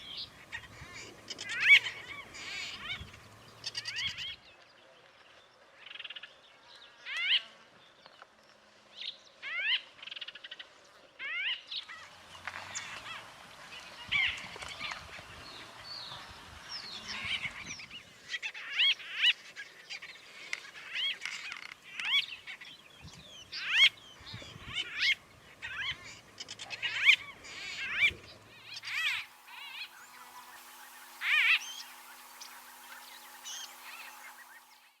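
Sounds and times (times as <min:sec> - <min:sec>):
birds chirping upward in pitch: 0:00.0 - 0:04.4, 0:11.8 - 0:18.2, 0:21.8 - 0:35.0
faint steady hum: 0:00.0 - 0:04.5, 0:11.8 - 0:35.0.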